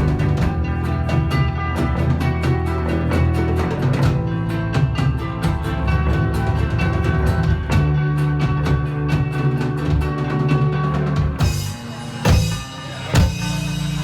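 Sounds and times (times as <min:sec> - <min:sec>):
rock band playing: 0:00.0 - 0:14.0
accented drum hits: 0:11.2 - 0:14.0.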